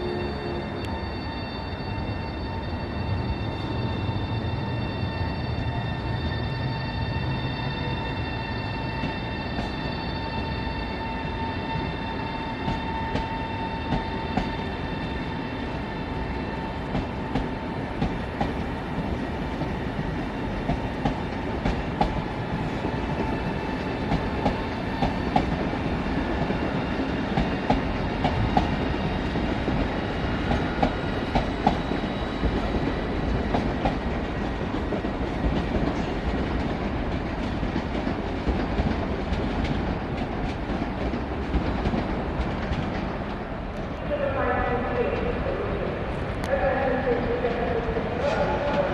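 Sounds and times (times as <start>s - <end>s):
train rumbling past: 0.0s - 48.9s.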